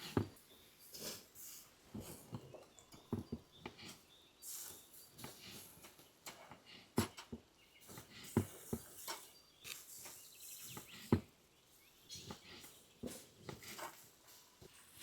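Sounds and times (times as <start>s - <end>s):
faint bird chirps: 7.1s - 13.2s.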